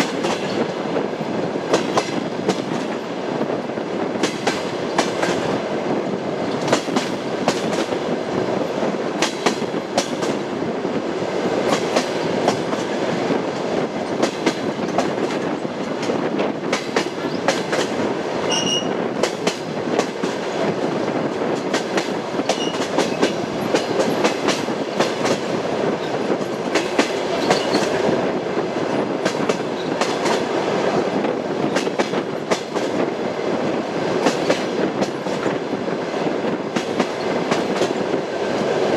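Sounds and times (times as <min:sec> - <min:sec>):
train carriage rumble: 0:00.0 - 0:38.9
train wheels clickety-clack: 0:00.0 - 0:38.9
high squeak: 0:18.5 - 0:18.9.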